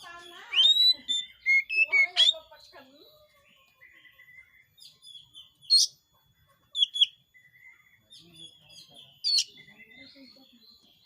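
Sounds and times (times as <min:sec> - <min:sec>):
bird singing sharp notes: 0:00.0 - 0:06.0.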